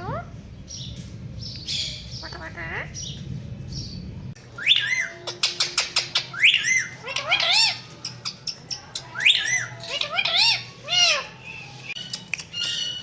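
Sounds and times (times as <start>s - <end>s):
parrot whistled calls: 4.6s - 7.9s.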